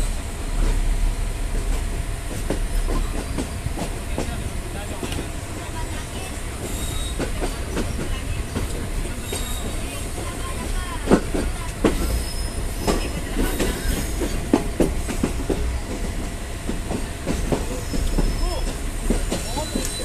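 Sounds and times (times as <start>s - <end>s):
freight train rumble: 0.0s - 20.0s
wheel clacks over rail joints: 6.6s - 20.0s
metallic wheel squeal: 6.7s - 7.3s, 9.2s - 9.9s, 12.0s - 13.2s, 19.4s - 20.0s.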